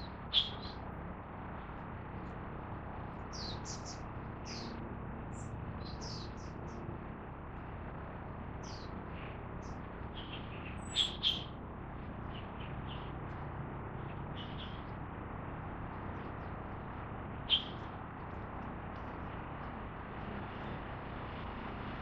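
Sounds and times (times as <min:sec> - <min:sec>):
birds chirping: 0:00.0 - 0:00.8, 0:03.2 - 0:06.8, 0:08.6 - 0:11.6, 0:13.9 - 0:14.9, 0:17.4 - 0:18.0
low background hum: 0:00.0 - 0:22.0.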